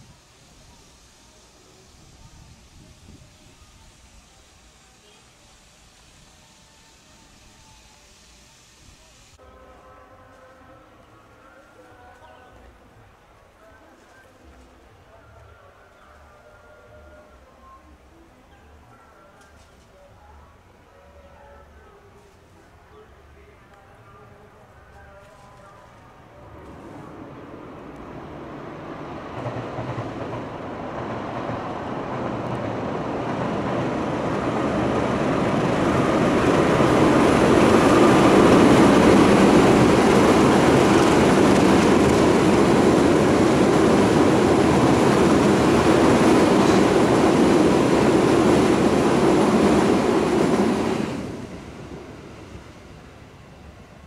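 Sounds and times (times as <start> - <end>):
train rumbling over bridge: 24.9 - 54.0.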